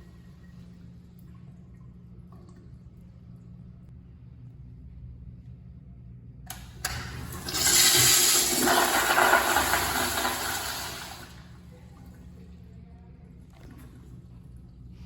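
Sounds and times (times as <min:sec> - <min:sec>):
toilet flushing: 0:06.5 - 0:11.6.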